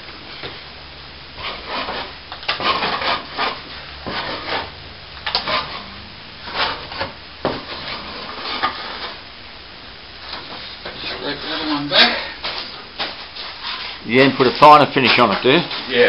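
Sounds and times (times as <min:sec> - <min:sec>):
scraper scraping plaster: 0:01.4 - 0:04.7, 0:05.3 - 0:09.2, 0:13.4 - 0:16.0.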